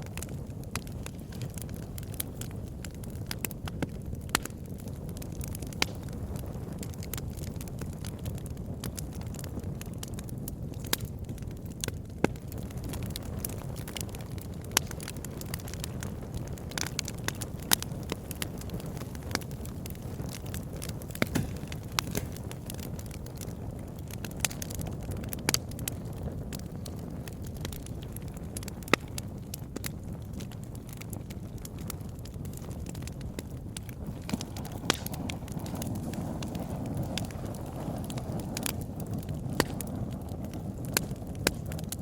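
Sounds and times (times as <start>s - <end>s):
burning wood crackling and popping: 0.0s - 42.0s
campfire flames rumbling: 0.0s - 42.0s.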